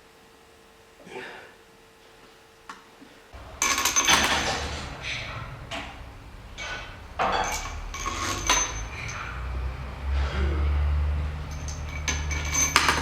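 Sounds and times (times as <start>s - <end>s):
metal parts clanking and scraping: 3.4s - 10.4s, 11.3s - 13.0s.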